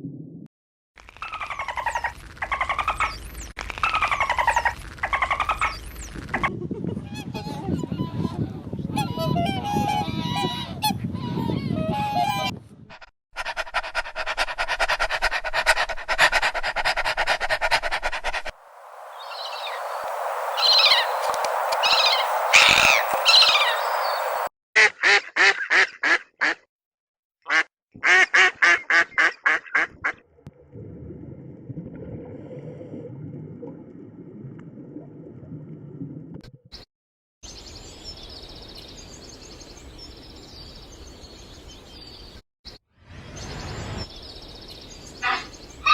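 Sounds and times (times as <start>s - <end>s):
bird calls: 18.6s - 24.5s
hiss: 18.6s - 24.5s
fast rattling animal calls: 19.2s - 24.5s
quick duck quacks: 24.8s - 26.7s.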